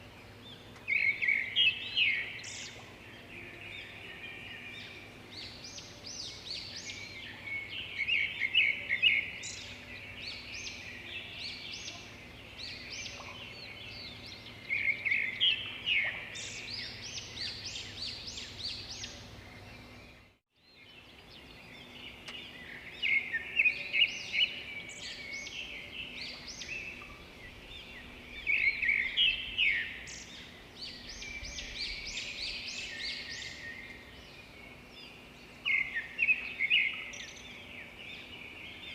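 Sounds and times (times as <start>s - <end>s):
outdoor background noise: 0.0s - 38.9s
small birds chirping: 0.0s - 38.9s.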